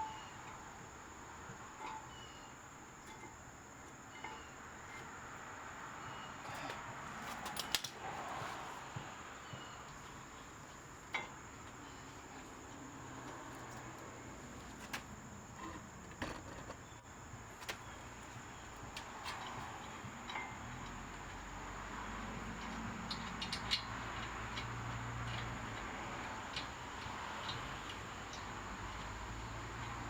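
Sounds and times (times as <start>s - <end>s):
steady background hiss: 0.0s - 30.0s.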